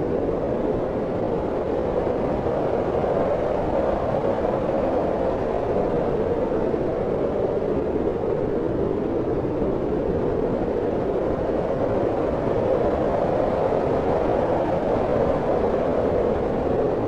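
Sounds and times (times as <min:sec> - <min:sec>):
deep steady wind: 0:00.0 - 0:17.0.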